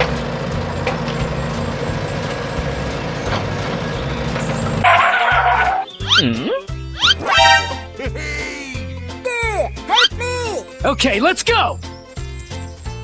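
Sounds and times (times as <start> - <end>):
truck engine running: 0.0 - 9.0.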